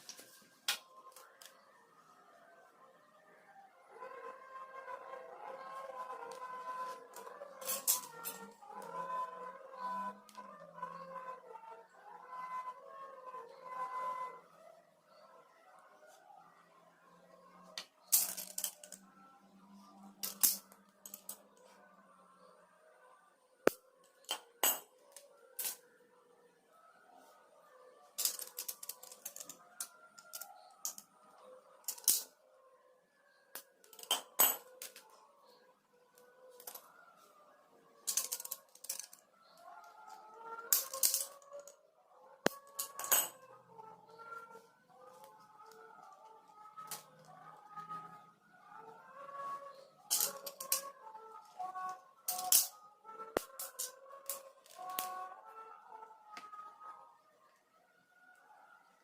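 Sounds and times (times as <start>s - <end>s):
plastic pieces and tools clattering: 6.3s - 8.6s, 17.8s - 19.1s, 20.1s - 21.4s, 23.6s - 25.8s, 28.2s - 31.1s, 31.8s - 32.3s, 33.5s - 35.2s, 38.0s - 39.2s, 40.1s - 41.8s, 42.4s - 43.4s, 50.0s - 55.2s.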